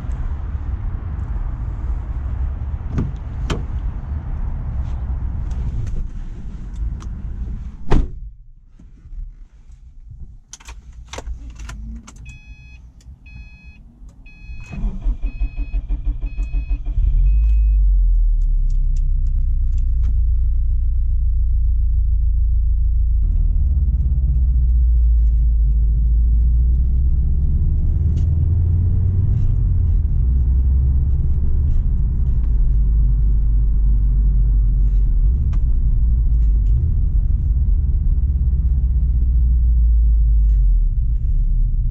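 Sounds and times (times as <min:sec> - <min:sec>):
thump: 0:02.9 - 0:03.7, 0:07.8 - 0:08.4
dashboard warning chime beeping: 0:12.2 - 0:17.8
car starter cranking: 0:14.4 - 0:17.6.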